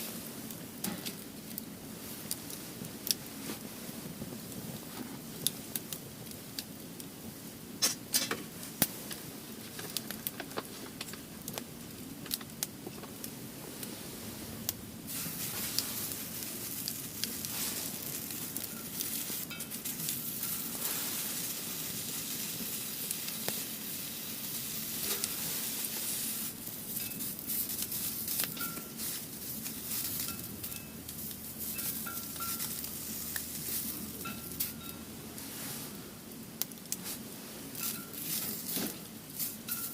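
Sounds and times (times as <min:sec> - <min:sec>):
firewood crackling and popping: 0:00.0 - 0:39.9
hiss of flames: 0:00.0 - 0:39.9.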